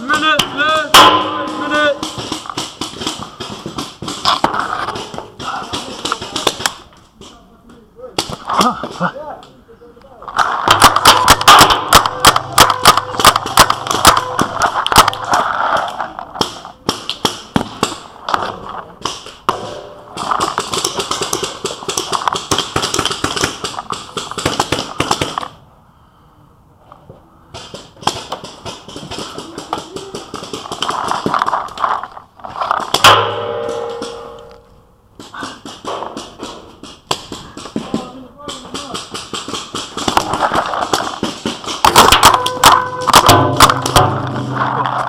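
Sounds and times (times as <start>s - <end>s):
loud crack: 10.4s - 18.1s.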